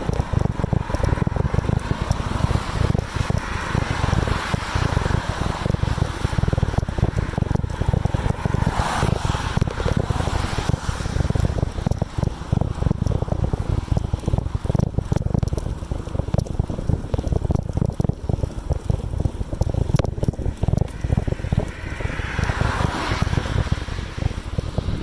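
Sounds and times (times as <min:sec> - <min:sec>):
air hiss and road noise: 0:00.0 - 0:14.2, 0:21.0 - 0:25.0
wind buffeting microphone: 0:00.0 - 0:25.0.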